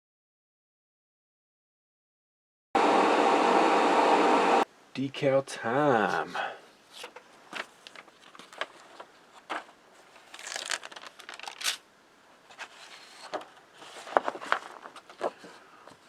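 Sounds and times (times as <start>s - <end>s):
paper sheet crinkling: 6.9s - 11.8s, 12.4s - 16.0s.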